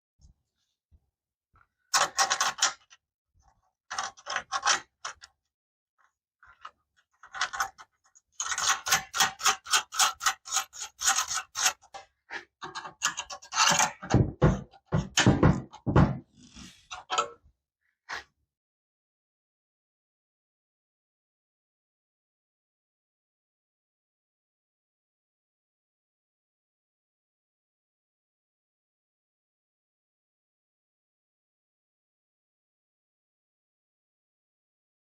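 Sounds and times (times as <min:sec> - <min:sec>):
hand tools clicking and scraping: 0:06.5 - 0:17.3.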